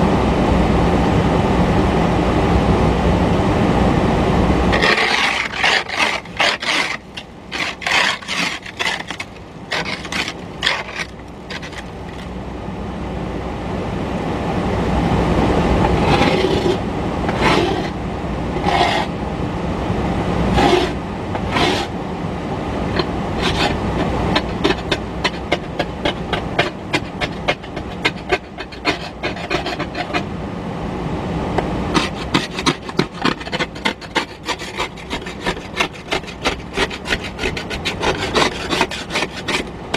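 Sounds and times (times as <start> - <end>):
ice scraper scraping car window: 4.7 - 12.3, 15.9 - 18.0, 18.6 - 19.1, 20.5 - 22.0, 23.0 - 30.3, 31.9 - 39.9.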